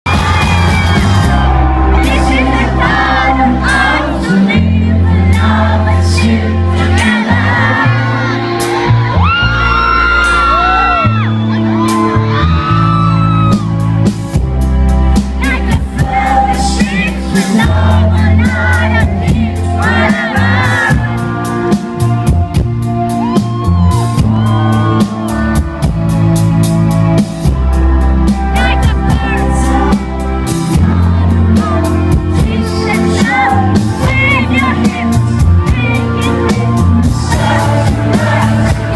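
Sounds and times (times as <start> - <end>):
crowd cheering: 0.0 - 4.3, 6.9 - 14.1, 19.8 - 26.5
drum kit beat: 0.0 - 38.9
live rock band: 0.0 - 38.9
voices singing: 0.1 - 9.0, 15.4 - 22.0, 28.6 - 38.9.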